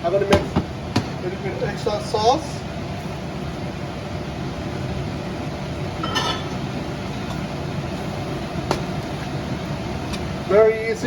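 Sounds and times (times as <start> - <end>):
steady mechanical hum: 0.0 - 11.0
utensil clinking on a pan: 6.0 - 6.5.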